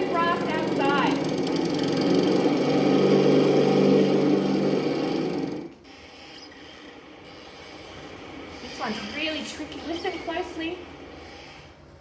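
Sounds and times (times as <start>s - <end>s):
lawnmower engine cutting grass: 0.5s - 5.6s.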